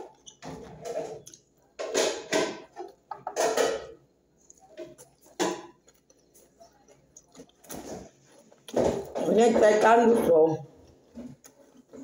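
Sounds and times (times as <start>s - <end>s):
loud chewing and mouth noises: 4.4s - 8.8s.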